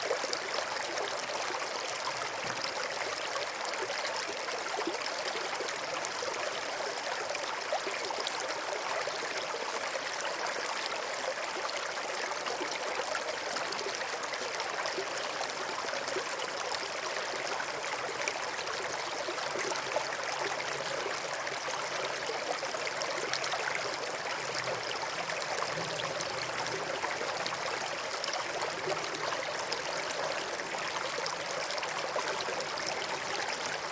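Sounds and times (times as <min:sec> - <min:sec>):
stream trickling over stones: 0:00.0 - 0:33.9.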